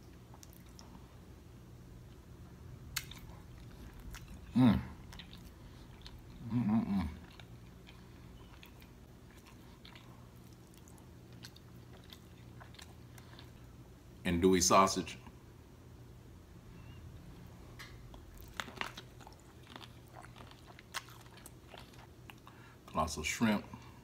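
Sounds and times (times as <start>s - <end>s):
person chewing wetly: 0.0s - 1.3s, 2.9s - 13.9s, 17.8s - 22.8s.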